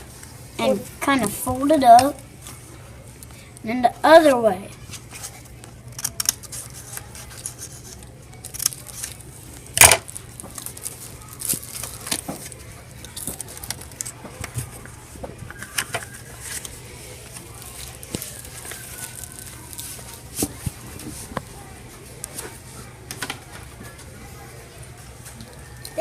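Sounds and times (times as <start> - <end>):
paper rustling and crinkling: 4.8 - 22.6.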